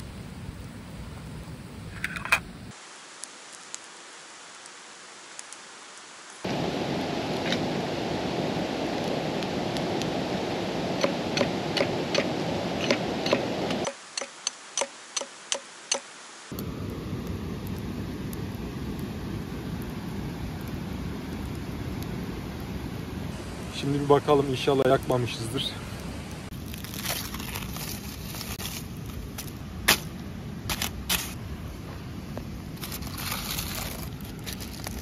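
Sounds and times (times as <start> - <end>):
wood fire crackling and popping: 0.0 - 35.0
steady rushing noise: 6.4 - 14.6, 15.2 - 26.6.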